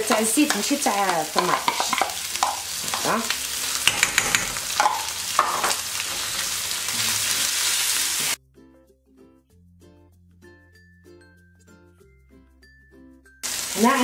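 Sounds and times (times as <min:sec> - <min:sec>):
wooden spoon scraping a pan: 0:00.0 - 0:08.3
food sizzling in oil: 0:00.0 - 0:08.4, 0:13.4 - 0:14.0.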